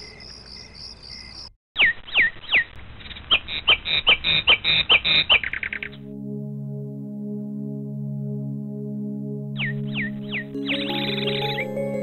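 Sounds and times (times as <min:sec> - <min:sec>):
crickets chirping: 0:00.0 - 0:01.5.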